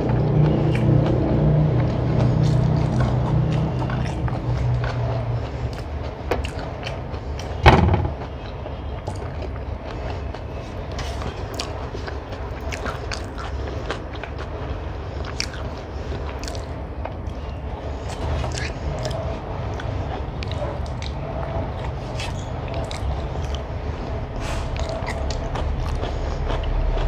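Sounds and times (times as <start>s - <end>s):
chewing with wet mouth clicks: 0.0s - 7.6s, 8.4s - 23.7s, 24.5s - 27.0s
sharp knock: 7.6s - 8.2s.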